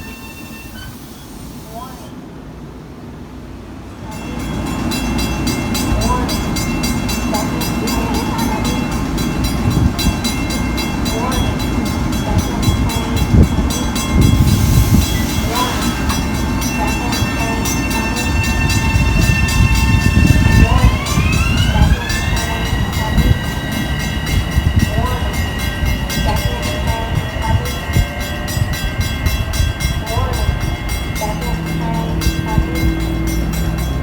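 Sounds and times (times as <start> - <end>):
train rumbling past: 0.0 - 34.0
whining tones: 12.9 - 34.0.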